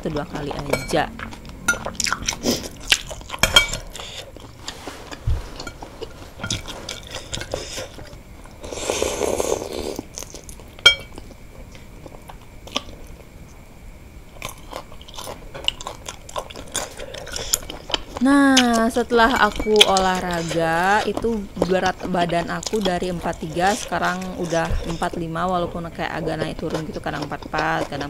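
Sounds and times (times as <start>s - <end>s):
chewing and crunching: 0.0s - 13.6s, 14.3s - 28.0s
slurping: 1.2s - 10.6s
spoon clinking against a bowl: 10.8s - 11.2s.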